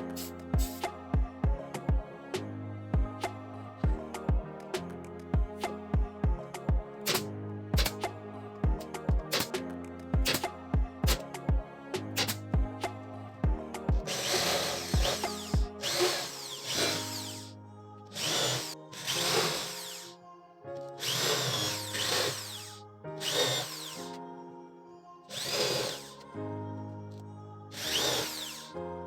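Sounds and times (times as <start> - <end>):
background music: 0.0 - 29.0
power tool motor bursts: 14.1 - 17.5, 18.2 - 20.1, 21.0 - 24.1, 25.3 - 26.1, 27.8 - 28.7.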